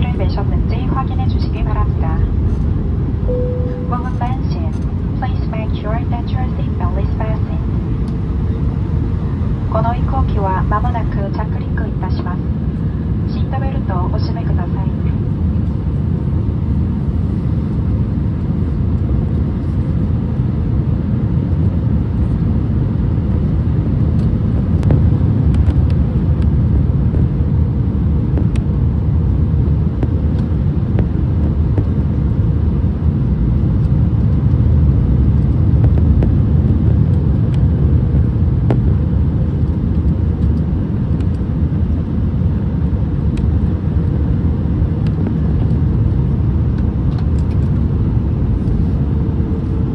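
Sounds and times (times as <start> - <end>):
airliner cabin engine rumble: 0.0 - 49.9.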